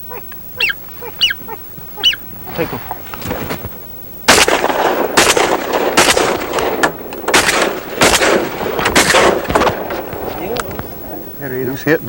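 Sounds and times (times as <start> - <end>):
shotgun shots with echo: 4.3 - 11.1.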